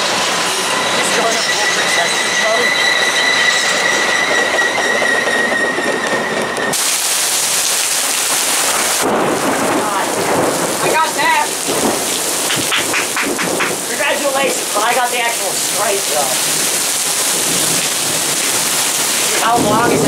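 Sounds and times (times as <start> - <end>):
train wheel squeal: 0.0 - 6.8
heavy rain pouring: 0.0 - 20.0.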